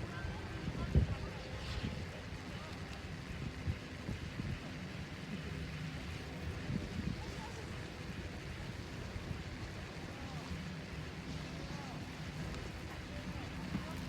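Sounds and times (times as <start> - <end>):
faint distant voices: 0.0 - 14.0.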